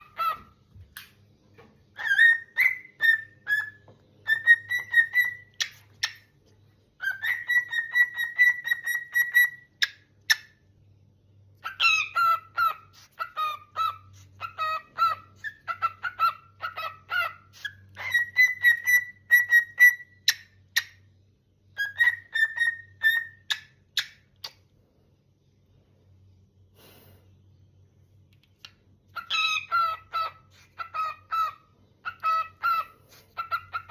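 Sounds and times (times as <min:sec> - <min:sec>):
cockatiel whistling and chirping: 0:00.0 - 0:00.6, 0:01.9 - 0:06.3, 0:07.0 - 0:10.6, 0:11.6 - 0:21.1, 0:21.7 - 0:24.6, 0:29.1 - 0:33.9.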